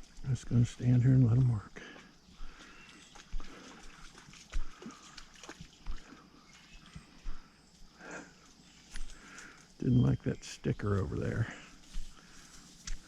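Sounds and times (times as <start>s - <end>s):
trickling water: 0.0s - 7.5s
faint water splashing: 0.0s - 13.0s.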